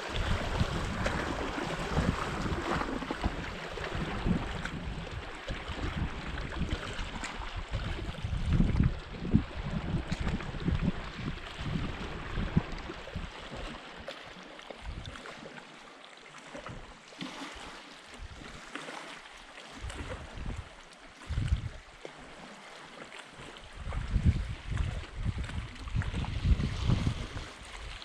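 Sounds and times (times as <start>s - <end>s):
wind rumbling on microphone: 0.0s - 14.0s, 14.8s - 15.3s, 17.6s - 18.7s, 19.7s - 22.0s, 23.5s - 28.0s
water lapping on shore: 0.0s - 28.0s.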